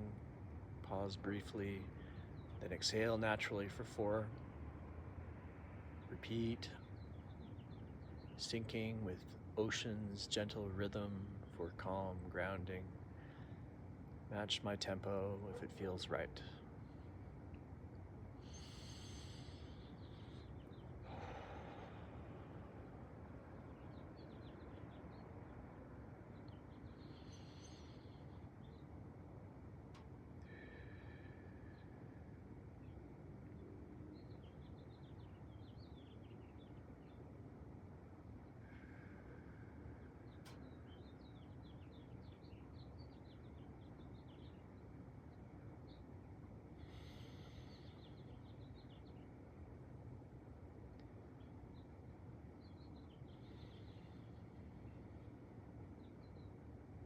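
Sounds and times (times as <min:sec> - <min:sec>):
outdoor background noise: 0:00.0 - 0:57.0
steady low background noise: 0:00.0 - 0:57.0
faint bird chirps: 0:05.9 - 0:57.0
man breathing: 0:13.1 - 0:13.8, 0:18.4 - 0:23.9, 0:26.7 - 0:28.6, 0:30.4 - 0:32.4, 0:38.6 - 0:40.6, 0:46.8 - 0:48.3, 0:53.4 - 0:55.4
small bird chirping: 0:51.2 - 0:56.6.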